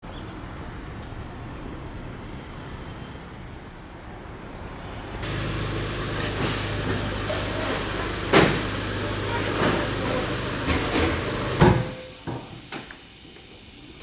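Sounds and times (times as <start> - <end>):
steady low hum: 5.2 - 12.2
vehicle engine rumble: 5.2 - 14.0.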